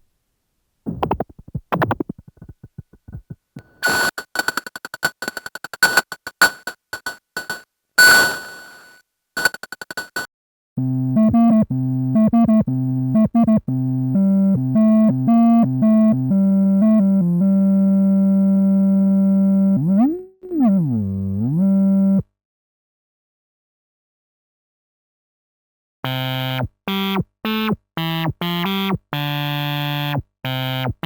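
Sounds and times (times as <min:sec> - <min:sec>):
synthesizer clicks: 0:03.6 - 0:10.3
synthesizer percussive hit: 0:03.8 - 0:10.3.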